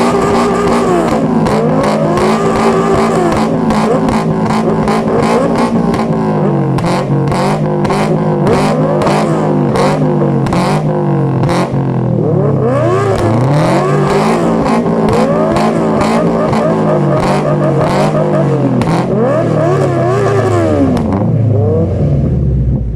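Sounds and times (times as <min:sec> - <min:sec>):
exhaust pops: 0:00.0 - 0:11.8
engine revving: 0:00.0 - 0:22.9.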